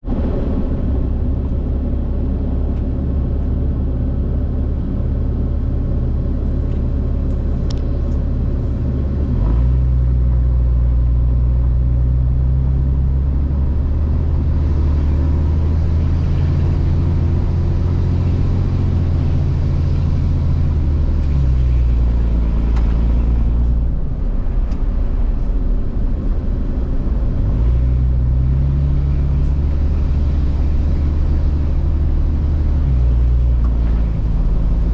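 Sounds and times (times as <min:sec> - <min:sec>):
truck engine running: 0:00.0 - 0:34.9.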